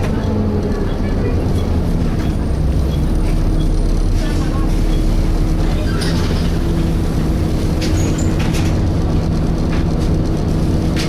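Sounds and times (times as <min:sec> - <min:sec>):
bus engine humming: 0:00.0 - 0:11.0
body rattles and clicks: 0:07.4 - 0:11.0.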